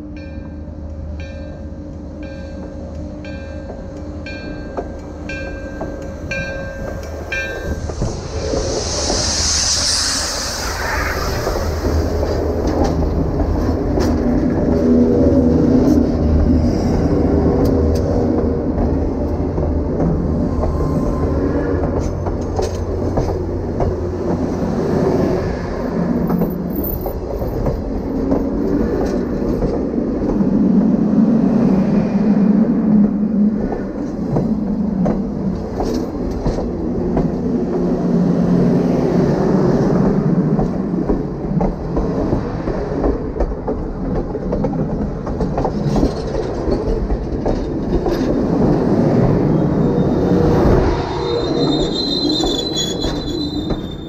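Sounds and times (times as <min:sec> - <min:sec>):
train wheels rumbling on rails: 0:00.0 - 0:54.0
high wheel squeal: 0:49.4 - 0:54.0.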